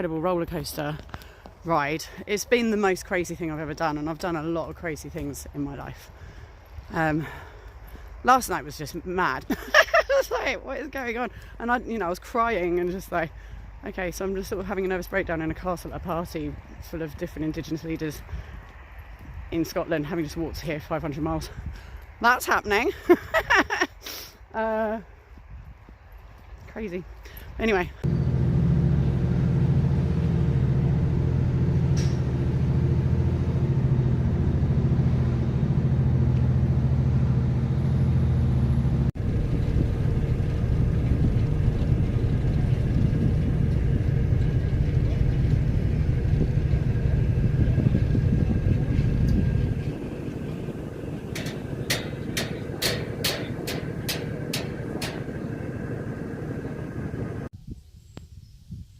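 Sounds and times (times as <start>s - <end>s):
vehicle engine droning: 28.0s - 57.5s.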